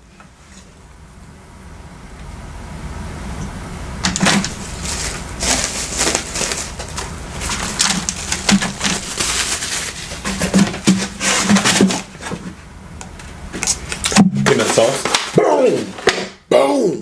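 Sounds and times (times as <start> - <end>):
low steady hum: 0.0 - 17.0
packaging crinkling: 4.2 - 12.6, 13.6 - 16.4.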